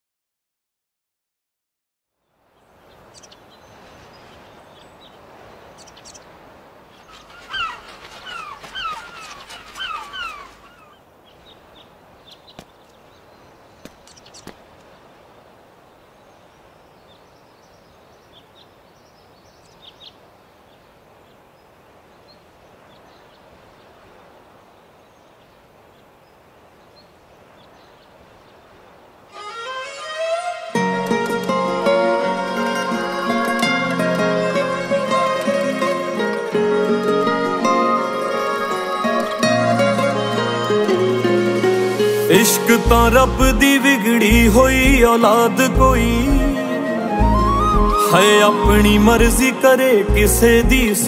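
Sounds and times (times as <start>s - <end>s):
faint bird chirps: 2.2s - 14.6s
steady background hiss: 2.2s - 51.0s
bird falling call notes: 3.1s - 14.6s, 29.3s - 51.0s.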